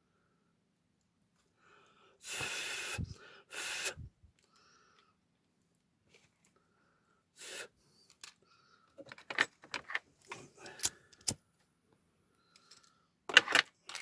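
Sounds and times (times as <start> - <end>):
short hiss: 2.2 - 4.1
tools clattering on workbench: 9.0 - 11.4, 12.7 - 14.0.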